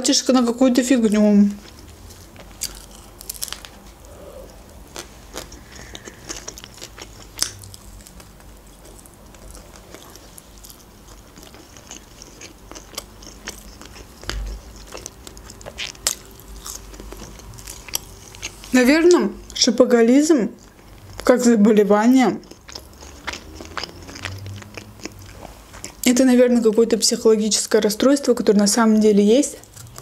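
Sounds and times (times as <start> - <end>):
person chewing: 1.6 - 19.6, 20.6 - 26.8, 29.6 - 30.0
biting into a wrap: 1.7 - 18.7, 22.4 - 26.0.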